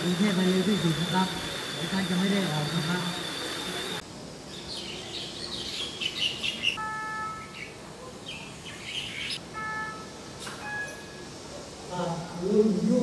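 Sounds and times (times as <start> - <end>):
small birds chirping: 2.6 - 6.8, 7.5 - 9.4.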